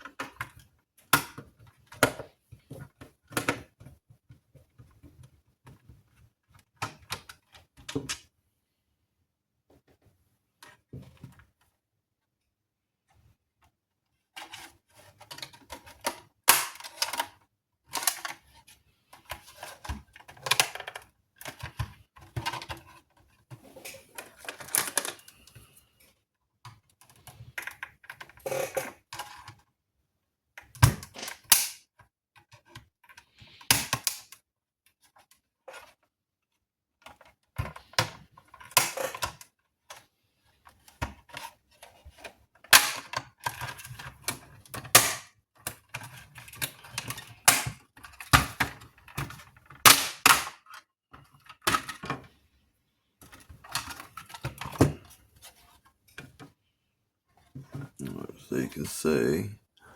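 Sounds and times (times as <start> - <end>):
plastic parts clicking and clacking: 13.2 - 25.6, 26.6 - 29.7, 30.6 - 36.1, 37.0 - 52.4, 53.2 - 56.6.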